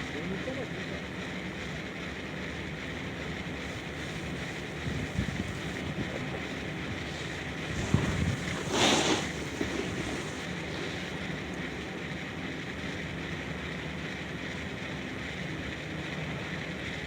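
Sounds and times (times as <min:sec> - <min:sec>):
wind buffeting microphone: 0:03.6 - 0:10.6.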